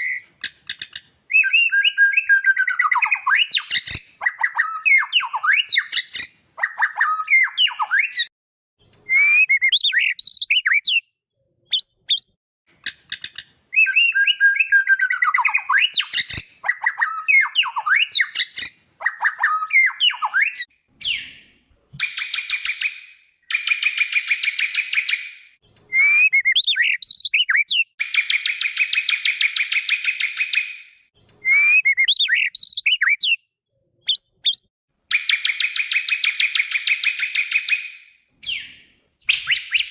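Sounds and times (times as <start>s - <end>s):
bird whistled song: 0.0s - 8.3s, 9.0s - 11.1s, 11.7s - 39.9s.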